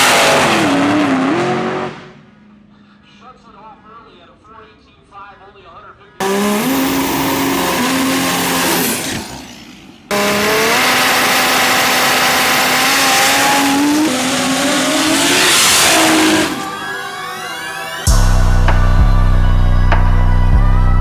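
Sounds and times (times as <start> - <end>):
diesel dragster engine at full power: 6.2 - 16.8.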